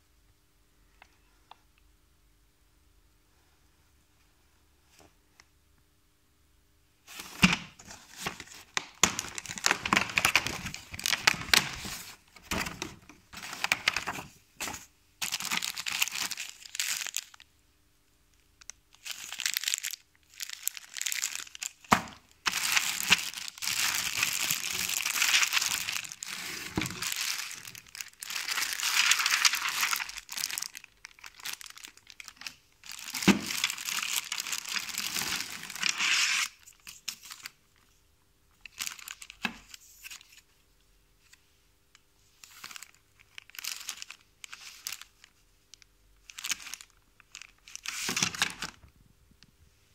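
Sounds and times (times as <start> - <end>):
packaging crinkling: 7.1 - 17.5, 18.6 - 37.6, 38.6 - 40.4, 42.4 - 48.9.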